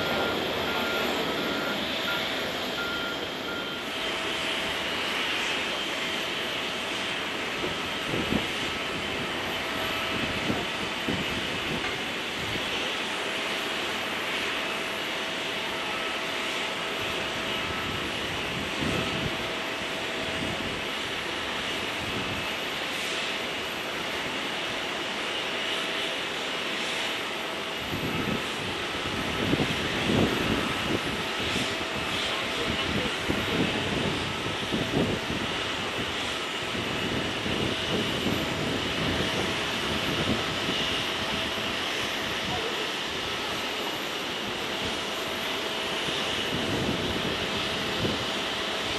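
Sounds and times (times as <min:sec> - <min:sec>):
faint steady whine: 0:00.0 - 0:06.2
faint high engine whine: 0:00.0 - 0:48.9
jet aircraft engine hiss: 0:00.0 - 0:48.9.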